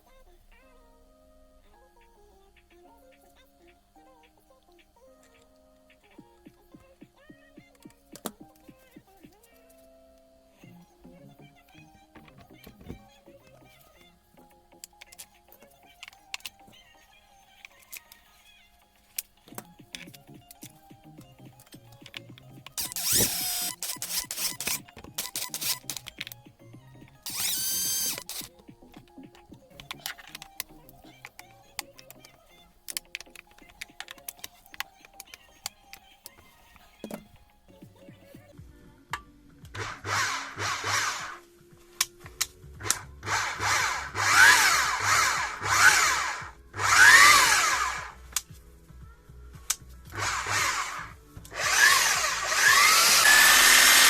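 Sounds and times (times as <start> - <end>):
background music: 0.0 - 54.0
sharp clicks: 21.8 - 26.4, 27.2 - 32.3, 39.7 - 41.4, 42.0 - 48.5, 49.7 - 54.0
hammer drill motor whine: 22.8 - 26.1, 27.2 - 28.5, 39.8 - 41.4, 42.8 - 48.2, 50.1 - 54.0.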